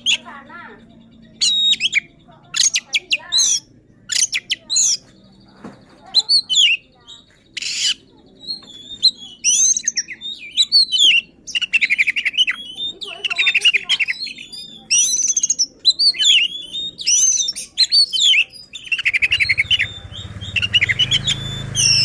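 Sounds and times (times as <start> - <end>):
bird singing sharp whistles: 14.4 - 22.0.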